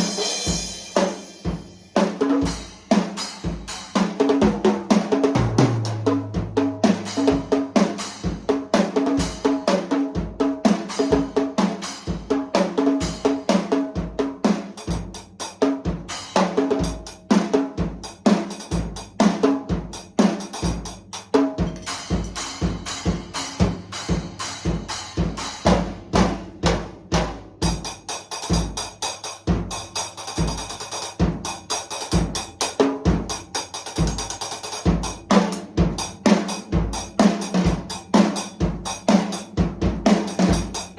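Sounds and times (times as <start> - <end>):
cymbals: 0.0 - 4.6, 10.6 - 13.6, 20.0 - 39.5
drum kit groove: 0.0 - 40.9.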